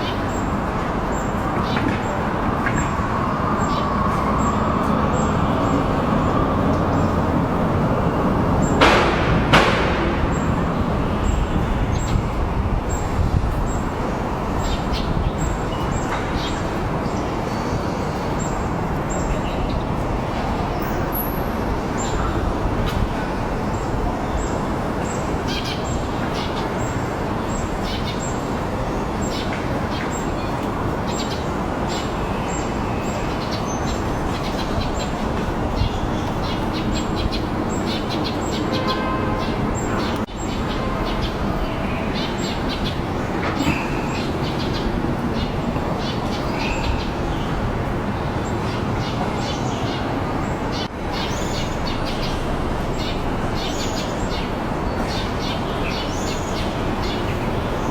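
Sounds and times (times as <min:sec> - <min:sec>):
distant road traffic: 0:00.0 - 0:57.9
loud sharp knocks: 0:08.8 - 0:10.7.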